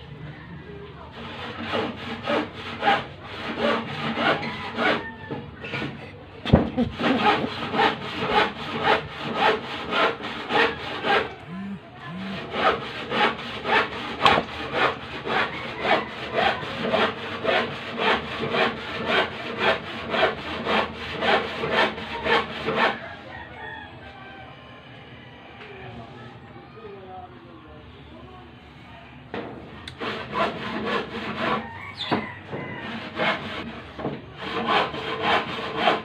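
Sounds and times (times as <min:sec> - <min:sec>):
rhythmic scraping strokes: 0:06.8 - 0:23.0.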